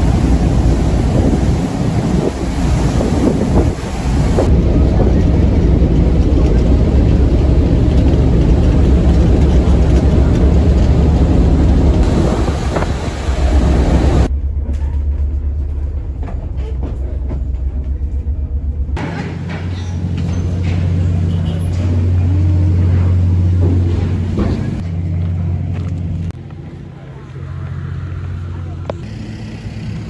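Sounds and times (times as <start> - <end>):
broad road hiss: 0.0 - 4.5, 6.3 - 14.3
vehicle engine hum: 0.0 - 30.0.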